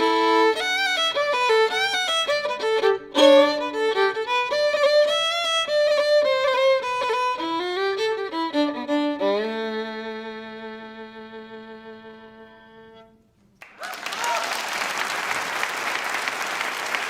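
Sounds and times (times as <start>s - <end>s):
violin playing: 0.0s - 13.4s.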